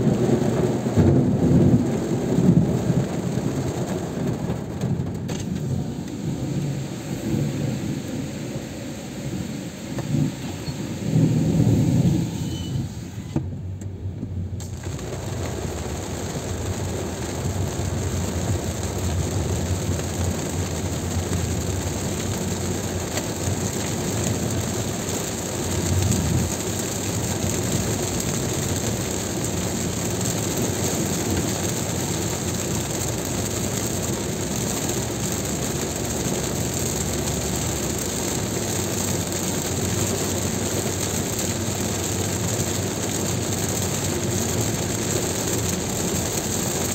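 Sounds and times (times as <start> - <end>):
rain on car: 0.0 - 46.9
tyres on wet road: 0.0 - 46.9
low rumble: 0.2 - 22.5.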